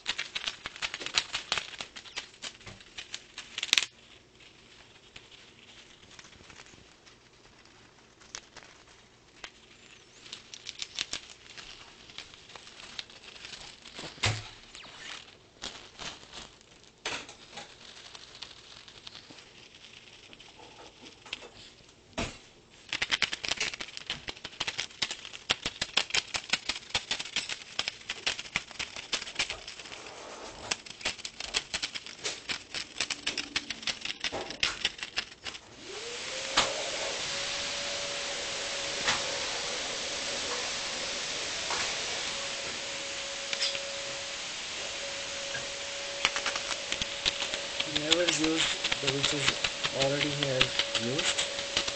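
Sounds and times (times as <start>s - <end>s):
bird wing flutter: 0.0s - 16.6s, 22.9s - 51.9s
beak clicking and crinkling strips: 0.0s - 22.0s, 22.7s - 51.9s
steady hiss: 0.0s - 51.9s
rising hum: 35.8s - 48.1s.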